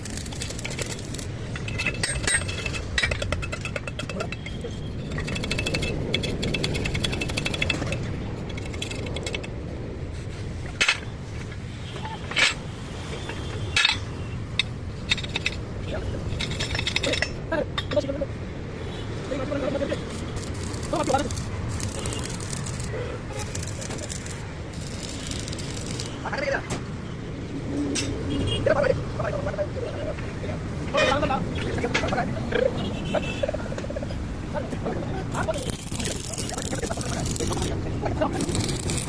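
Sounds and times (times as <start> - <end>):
metal clicking and clinking: 0.0 - 9.6, 16.3 - 17.4, 20.3 - 26.2.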